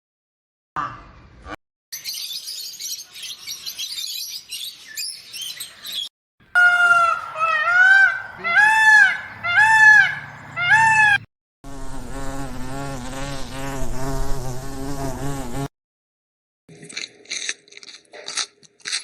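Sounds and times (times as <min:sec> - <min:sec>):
bird honking: 0:06.6 - 0:11.2
insect buzzing: 0:06.9 - 0:15.7.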